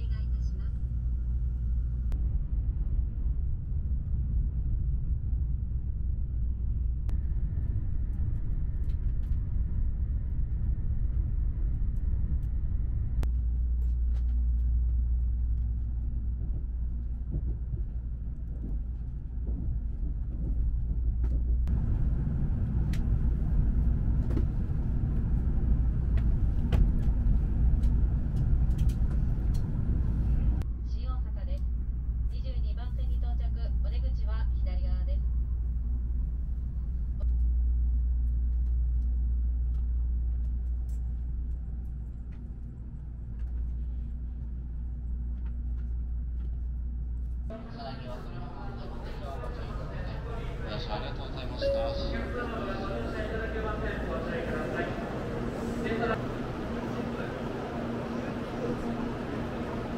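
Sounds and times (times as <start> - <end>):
train low rumble inside cabin: 0.0 - 59.9.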